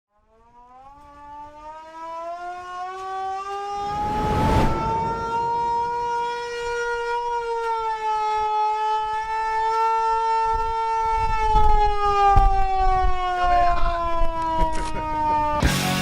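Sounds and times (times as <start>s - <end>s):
low rumble: 3.7s - 6.8s.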